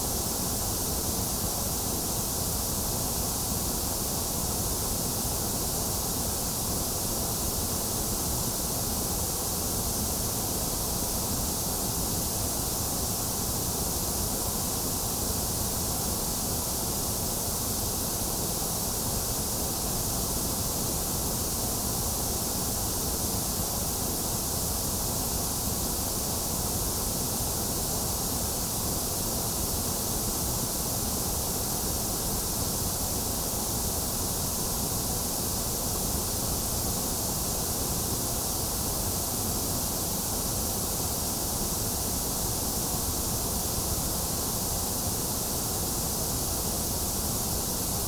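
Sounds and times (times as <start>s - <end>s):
white noise hiss: 0.0s - 48.0s.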